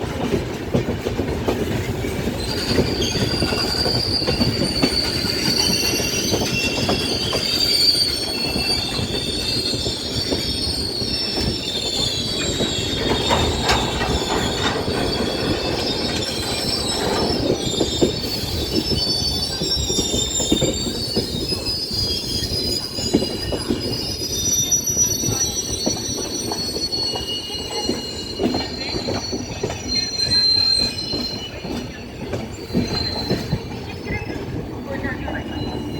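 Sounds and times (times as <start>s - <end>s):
train rumbling: 0.0s - 35.9s
train wheels squealing: 0.0s - 35.9s
wheels clacking over rail joints: 8.4s - 21.4s.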